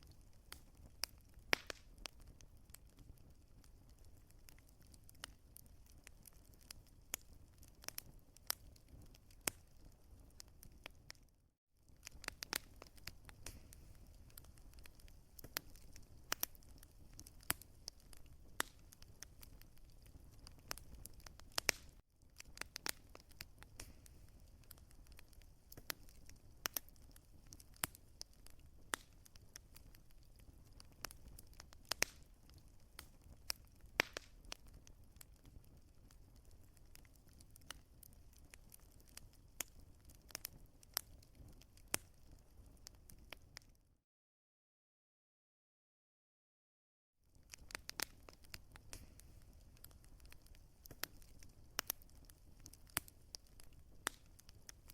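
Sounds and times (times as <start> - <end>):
wood fire crackling and popping: 0.0 - 43.8, 47.3 - 54.9.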